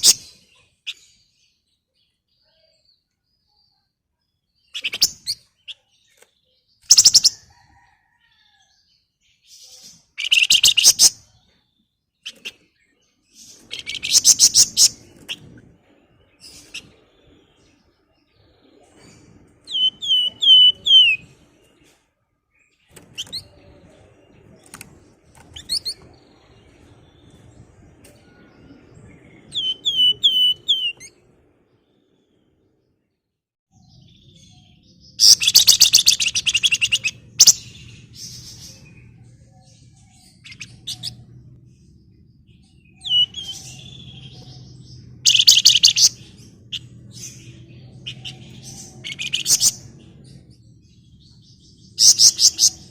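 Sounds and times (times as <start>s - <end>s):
songbird whistles and trills: 4.7s - 8.5s, 10.2s - 11.6s, 18.9s - 21.3s, 27.2s - 31.2s, 35.1s - 39.2s, 42.9s - 46.9s.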